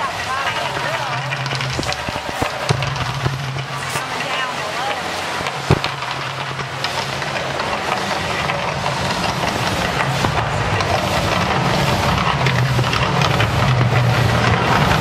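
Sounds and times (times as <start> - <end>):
crackling haze: 0.0 - 15.0
low steady rumble: 0.0 - 15.0.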